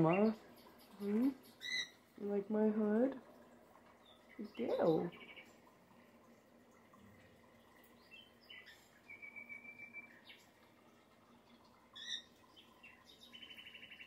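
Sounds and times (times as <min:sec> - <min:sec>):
pet birds chirping: 0:00.0 - 0:02.1, 0:04.0 - 0:05.7, 0:07.7 - 0:10.5, 0:11.9 - 0:14.0.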